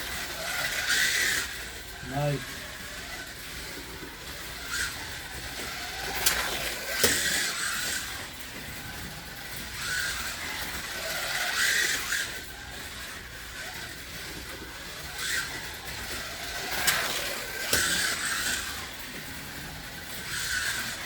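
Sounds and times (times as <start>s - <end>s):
slot car motors whining: 0.0s - 21.0s.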